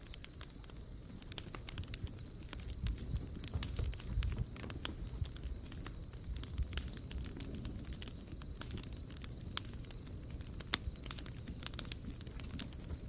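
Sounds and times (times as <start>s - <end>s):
campfire crackling: 0.0s - 13.0s
wood popping and snapping: 0.0s - 13.0s.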